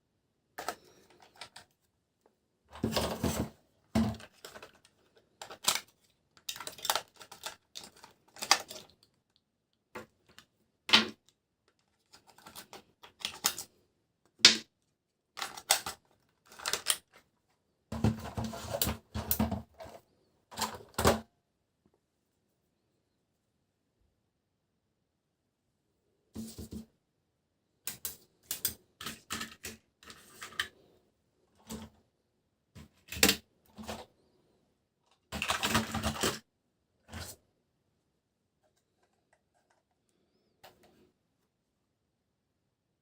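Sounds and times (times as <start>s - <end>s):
plastic toys clicking and clacking: 4.1s - 9.2s, 11.7s - 13.7s, 15.4s - 17.2s, 27.9s - 30.7s, 35.1s - 36.4s.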